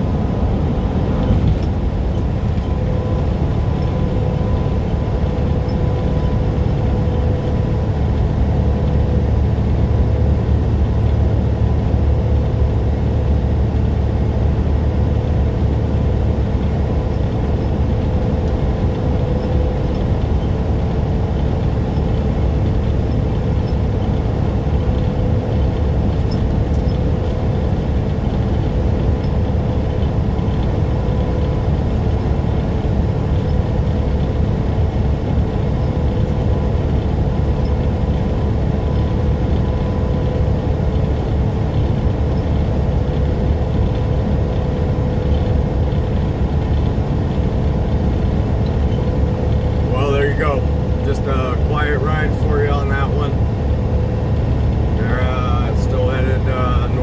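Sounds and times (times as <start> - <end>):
truck engine drone: 0.0 - 57.0
faint steady hum: 48.4 - 57.0.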